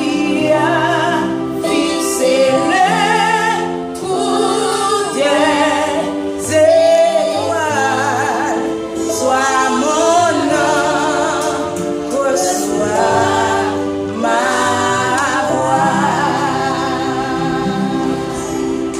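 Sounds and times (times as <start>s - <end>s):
woman and children singing: 0.0s - 18.9s.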